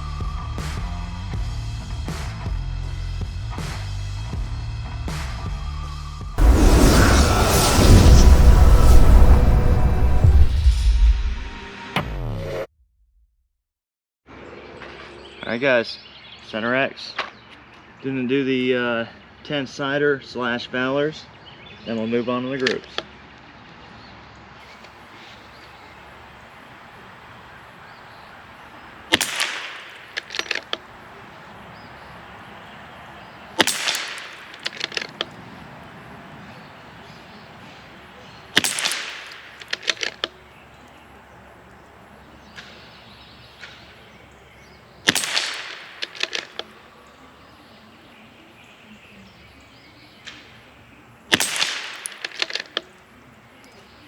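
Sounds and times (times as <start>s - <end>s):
rifle shots: 28.6s - 35.4s, 38.2s - 40.4s, 45.0s - 47.3s, 51.3s - 52.9s
rifle bolt clicking: 45.1s - 46.7s.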